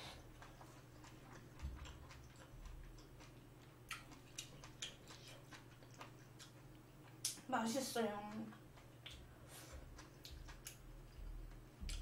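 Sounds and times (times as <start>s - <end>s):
chewing food: 0.0s - 12.0s
wet mouth clicks: 0.4s - 7.5s.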